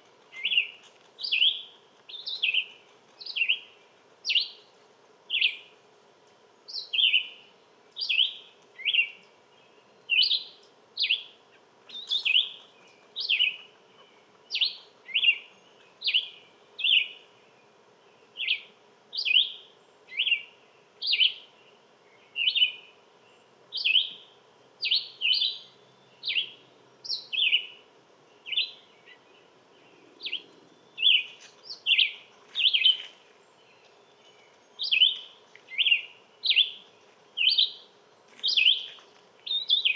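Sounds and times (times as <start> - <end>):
songbird calling: 0.0 - 4.7, 5.3 - 5.7, 6.7 - 39.9.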